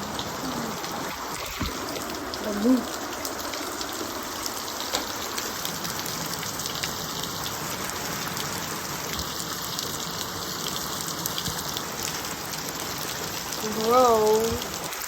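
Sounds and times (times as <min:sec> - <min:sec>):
heavy rain and hail: 0:00.0 - 0:15.0.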